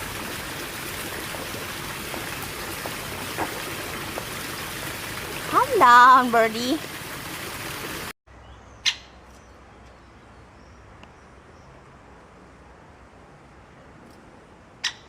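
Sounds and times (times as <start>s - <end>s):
steady hiss: 0.0s - 8.1s.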